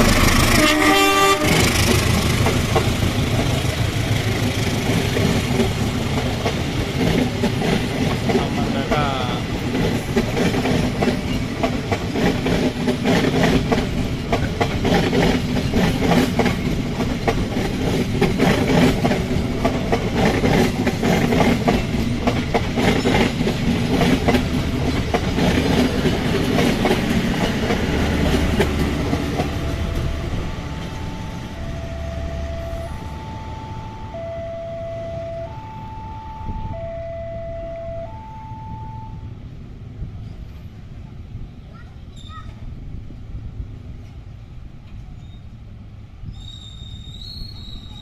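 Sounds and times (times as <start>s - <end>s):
train wheels clicking over rails: 0.0s - 31.7s
two-tone crossing beeping: 27.3s - 39.4s.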